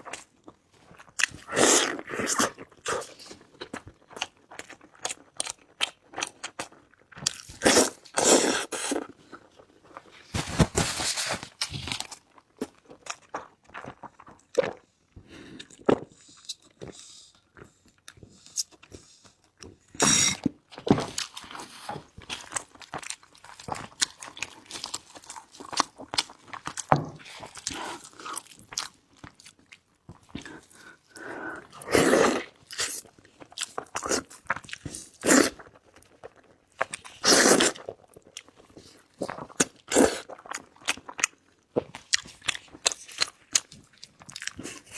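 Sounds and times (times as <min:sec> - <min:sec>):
person chewing and crunching: 0:00.0 - 0:44.9
slurping: 0:07.5 - 0:09.2, 0:30.4 - 0:33.1, 0:37.1 - 0:37.9.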